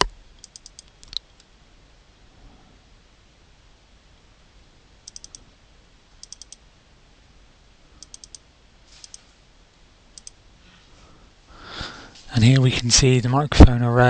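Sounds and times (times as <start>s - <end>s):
computer clicking: 0.0s - 1.5s, 5.0s - 5.5s, 6.2s - 6.6s, 8.0s - 9.3s, 10.1s - 10.4s.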